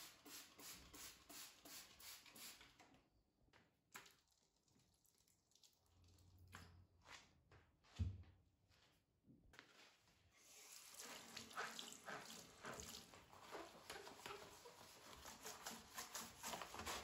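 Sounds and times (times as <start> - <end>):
water running at a sink: 10.4 - 16.0.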